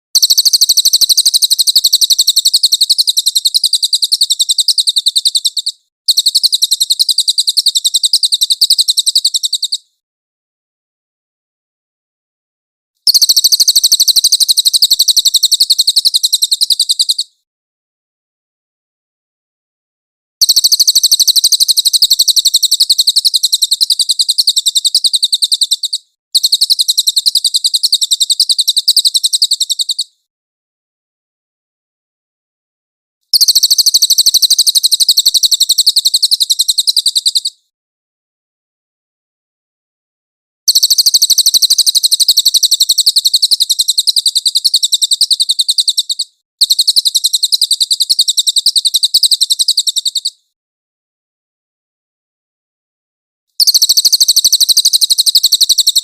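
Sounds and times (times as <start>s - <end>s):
bird trilling: 0.2s - 9.8s, 20.4s - 30.1s, 40.7s - 50.3s.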